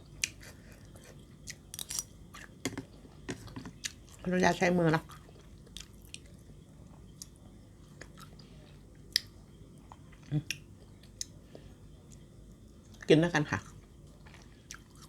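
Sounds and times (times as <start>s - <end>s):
person chewing food: 0.1s - 4.3s, 5.0s - 13.0s, 13.6s - 15.0s
food crunching: 0.2s - 4.3s.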